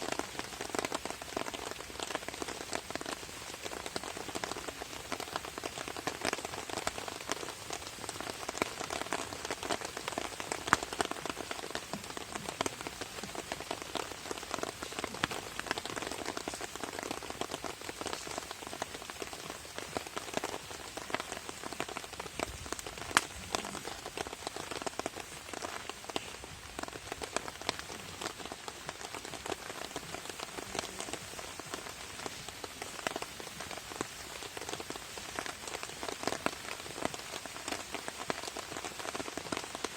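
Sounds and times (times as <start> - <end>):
rain pattering on a tarp: 0.0 - 39.9.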